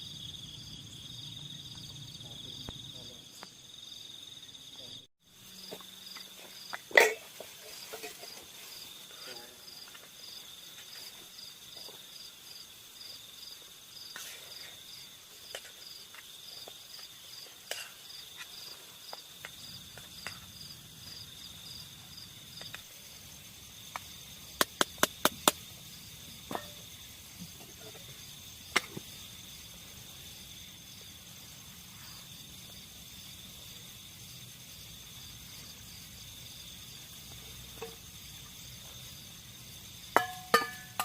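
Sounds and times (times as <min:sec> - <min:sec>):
crickets trilling: 0:00.0 - 0:41.0.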